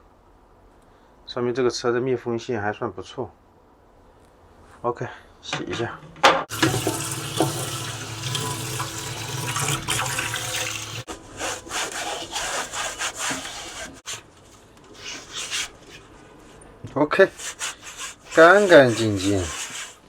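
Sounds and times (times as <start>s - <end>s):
tap water running: 6.5s - 11.2s, 12.0s - 14.1s
rubbing strokes: 6.5s - 20.0s.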